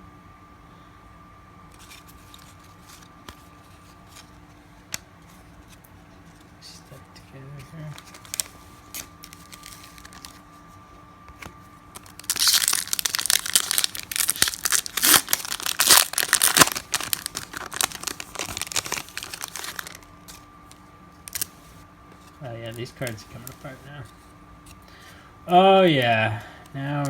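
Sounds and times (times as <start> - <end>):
cards crackling and tearing apart: 1.7 - 5.8, 7.6 - 10.5, 11.3 - 25.0.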